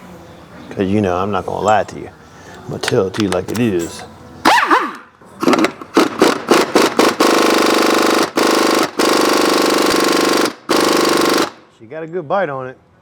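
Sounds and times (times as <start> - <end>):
impact wrench hammering: 4.5 - 11.6.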